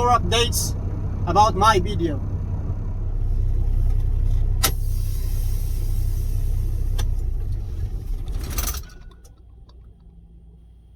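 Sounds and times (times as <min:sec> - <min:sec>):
truck engine idling: 0:00.0 - 0:10.9
air brake hiss: 0:04.6 - 0:07.0.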